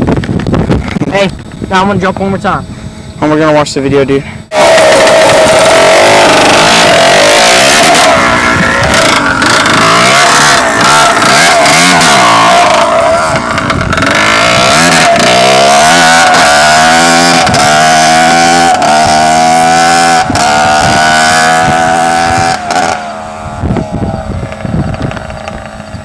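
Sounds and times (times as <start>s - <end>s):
dirt bike engine revving: 4.5s - 26.0s.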